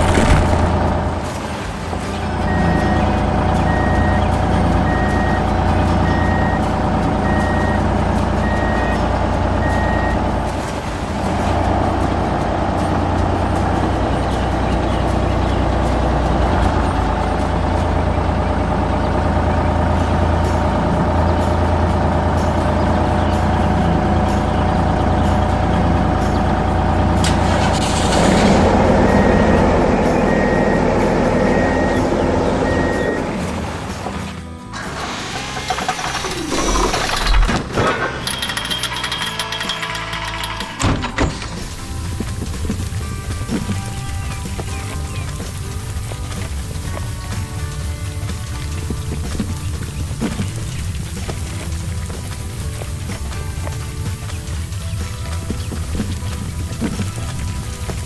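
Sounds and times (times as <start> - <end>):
truck engine rumbling: 0.0 - 58.0
reversing beeper: 2.3 - 10.5, 27.4 - 33.5.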